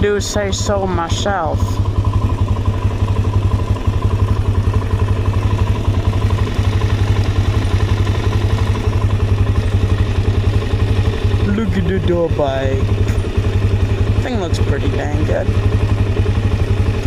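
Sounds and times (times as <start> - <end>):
quad engine idling: 0.0 - 17.0.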